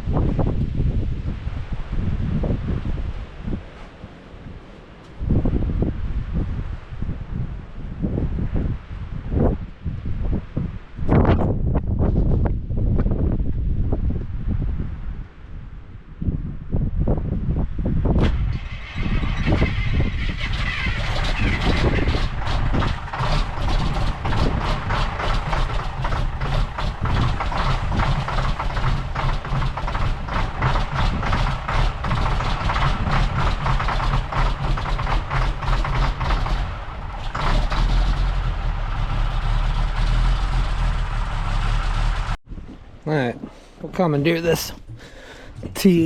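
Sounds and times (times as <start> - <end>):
tractor engine running: 18.5 - 42.4.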